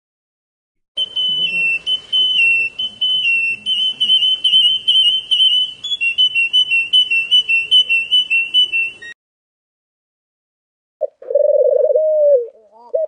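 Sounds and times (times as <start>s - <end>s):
bird warbling trill: 1.0s - 9.2s.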